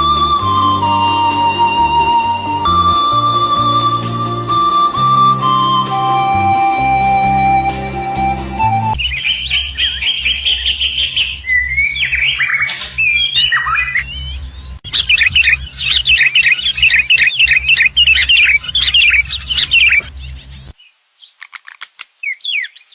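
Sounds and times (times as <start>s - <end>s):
birds chirping and calling: 9.0s - 22.9s.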